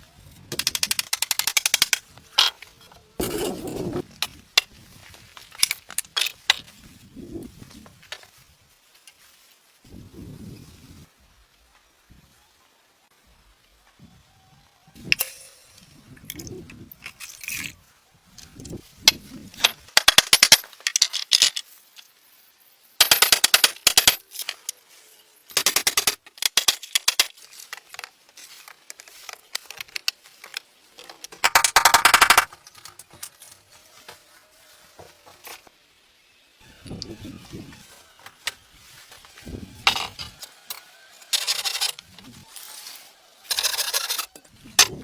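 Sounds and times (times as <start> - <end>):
quiet handling sounds: 27.2 - 31.5.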